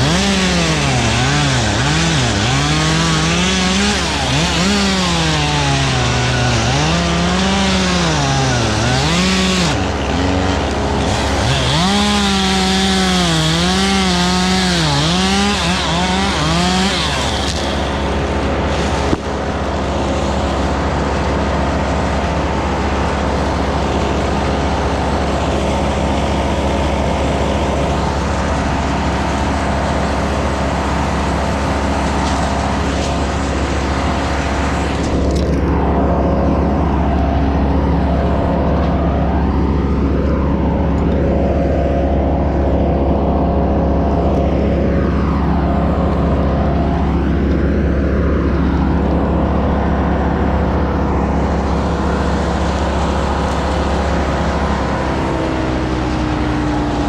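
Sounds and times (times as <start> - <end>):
chainsaw revving: 0.0 - 20.8
low engine drone: 0.0 - 57.0.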